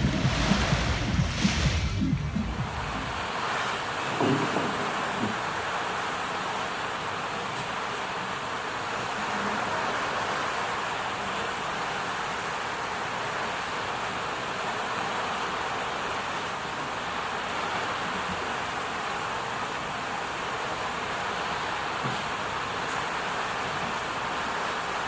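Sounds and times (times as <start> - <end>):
ocean surf washing: 0.0 - 4.3.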